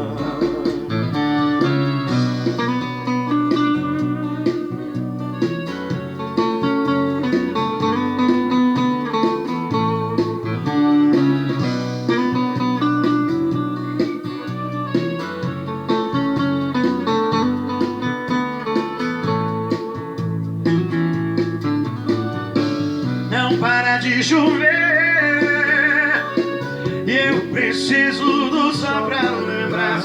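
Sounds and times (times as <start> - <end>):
band accompaniment: 0.0 - 30.0
plucked guitar: 0.0 - 30.0.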